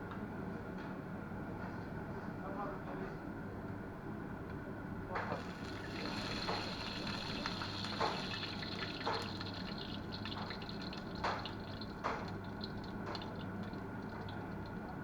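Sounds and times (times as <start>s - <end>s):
liquid drips: 5.2s - 15.0s.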